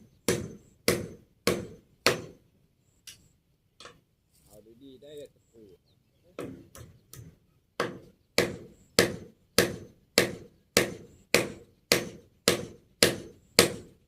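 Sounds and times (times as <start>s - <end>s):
hammer striking nail into wood: 0.3s - 2.4s, 6.4s - 14.0s.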